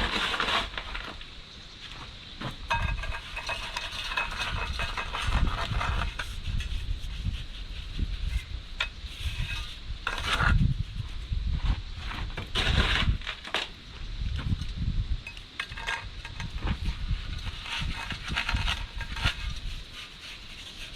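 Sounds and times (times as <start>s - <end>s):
wet concrete scraping and stirring: 0.0s - 1.3s, 2.4s - 11.2s, 12.0s - 13.8s, 15.2s - 20.9s.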